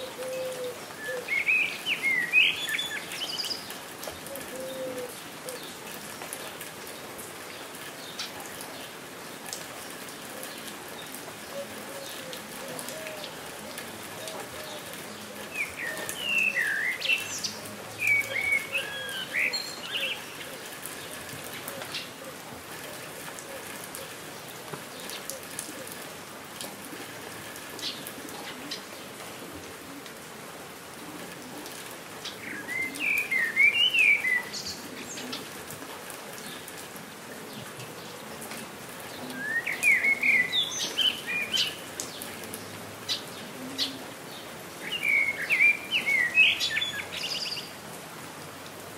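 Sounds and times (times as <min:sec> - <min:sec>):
songbird chirping: 0:00.0 - 0:05.0, 0:09.5 - 0:22.2, 0:32.2 - 0:35.5, 0:39.1 - 0:47.8
light rain pattering: 0:00.0 - 0:48.9.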